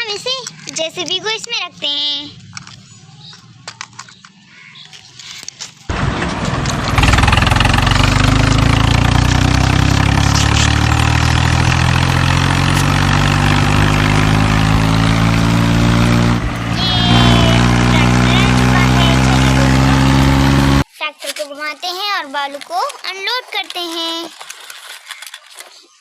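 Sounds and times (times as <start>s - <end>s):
toy tractor engine sound: 5.9s - 20.9s.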